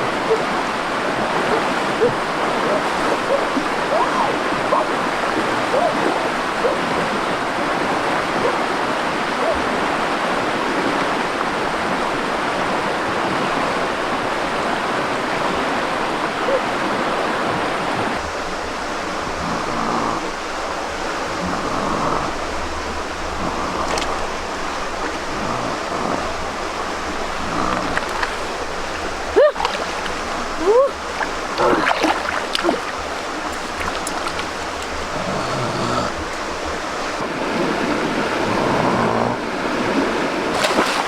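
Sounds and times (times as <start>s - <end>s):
running water rushing: 0.0s - 41.0s.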